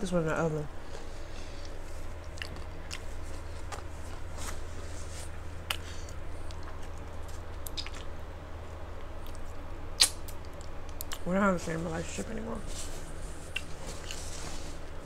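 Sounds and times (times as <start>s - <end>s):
steady low hum: 0.0s - 15.0s
person chewing food: 0.8s - 11.2s, 13.3s - 14.4s
small crunches and wet clicks: 0.9s - 4.3s, 5.6s - 8.2s, 9.0s - 11.3s.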